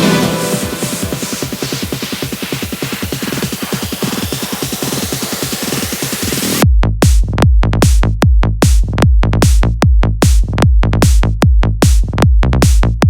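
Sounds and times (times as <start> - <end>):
electronic dance music: 0.0 - 6.6
hissing build-up: 0.0 - 6.6
heavy kick-drum and bass beat: 0.0 - 13.0.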